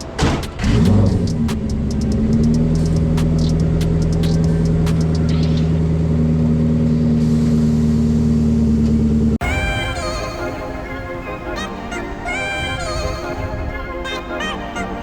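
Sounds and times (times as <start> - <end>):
sharp clicks: 0.0 - 5.7
truck engine running: 0.0 - 9.4.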